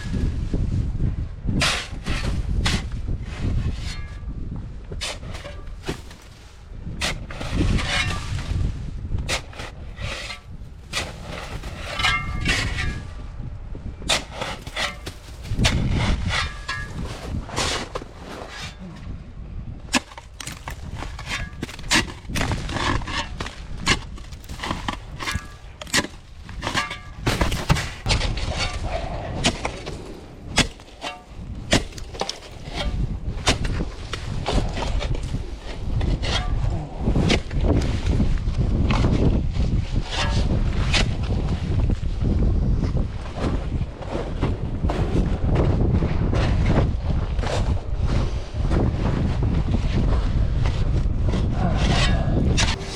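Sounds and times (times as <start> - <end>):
low wind rumble on microphone: 0.0 - 52.9
tool scraping icy snow: 7.0 - 8.7, 9.3 - 13.1, 14.1 - 18.8, 19.9 - 28.9, 51.8 - 52.9.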